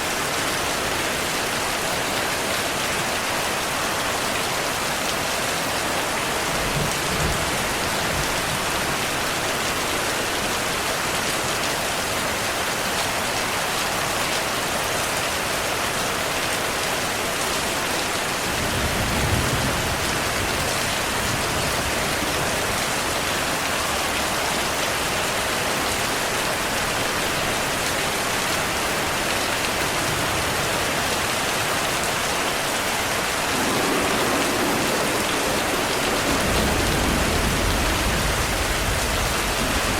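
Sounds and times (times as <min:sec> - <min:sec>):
heavy rain falling: 0:00.0 - 0:39.9
thunder rumbling: 0:32.8 - 0:39.9.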